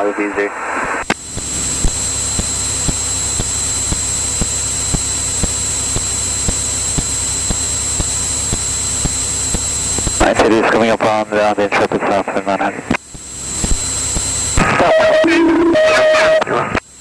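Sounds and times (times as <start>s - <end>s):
high constant whine: 0.0s - 17.0s
airplane engine and propeller: 1.0s - 17.0s
regular ticking: 1.1s - 10.2s, 13.0s - 14.6s.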